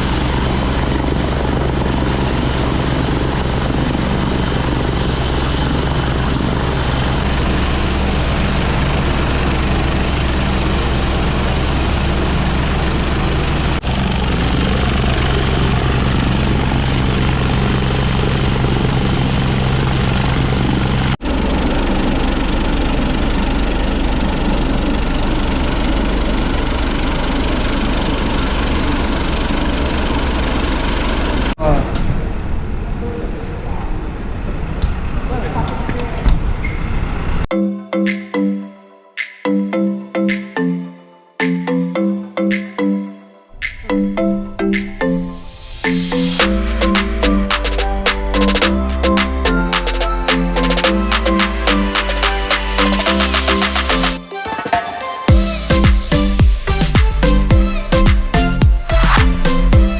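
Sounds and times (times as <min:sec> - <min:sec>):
helicopter rotor and engine: 0:00.0 - 0:31.6.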